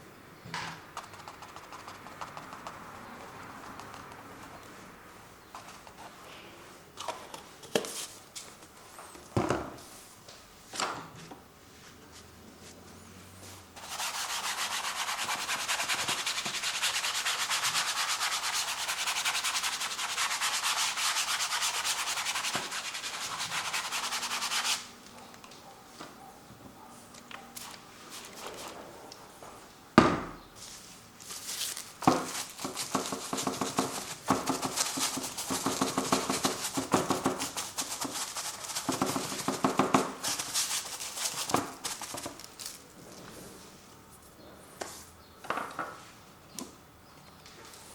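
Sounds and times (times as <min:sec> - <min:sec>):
painting tool rubbing canvas: 0:13.8 - 0:24.9, 0:32.1 - 0:42.1.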